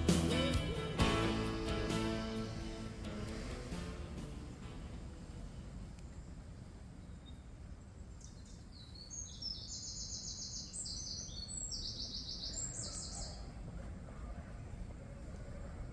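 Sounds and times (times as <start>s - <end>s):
songbird trilling: 8.2s - 13.5s.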